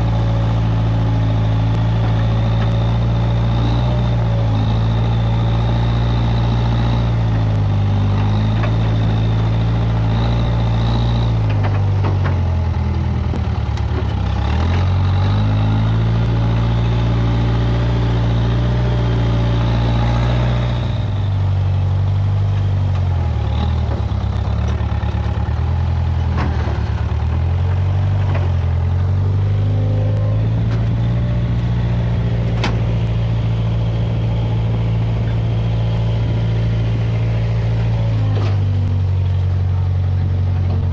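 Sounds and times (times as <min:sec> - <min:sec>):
backhoe engine running: 0:00.0 - 0:40.9.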